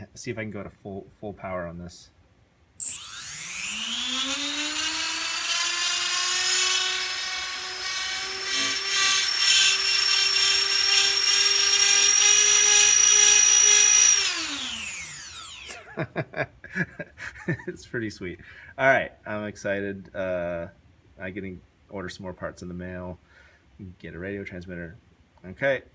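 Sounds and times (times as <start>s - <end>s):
motors whining: 2.8s - 15.9s.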